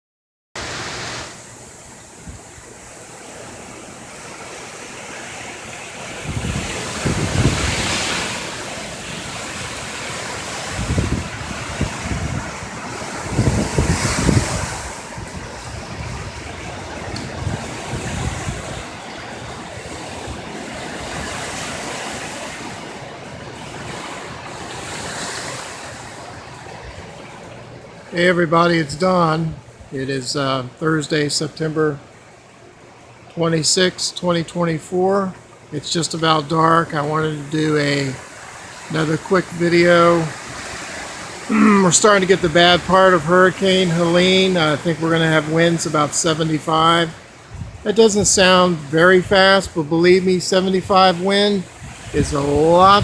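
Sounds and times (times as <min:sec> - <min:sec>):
strong wind gusting: 0:00.6 - 0:28.0, 0:37.4 - 0:53.0
wind buffeting microphone: 0:01.6 - 0:28.1, 0:46.8 - 0:49.8, 0:51.6 - 0:53.0.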